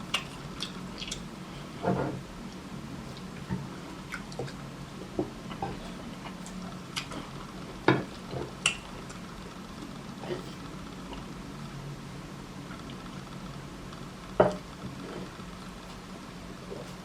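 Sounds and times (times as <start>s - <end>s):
soft eating squishes: 0.0s - 11.3s.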